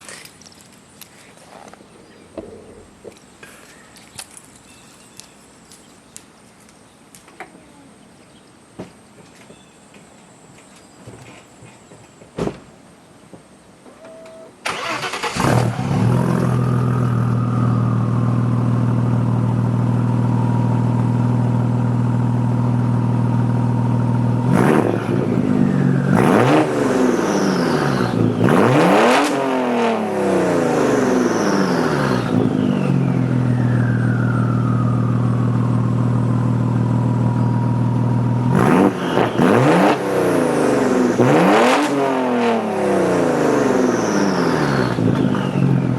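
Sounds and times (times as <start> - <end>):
car engine starting and idling: 14.0 - 45.9
engine revving: 14.7 - 45.9.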